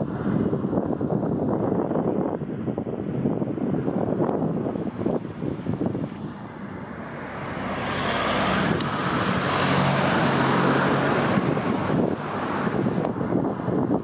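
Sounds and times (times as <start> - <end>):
car driving past: 6.3 - 12.9.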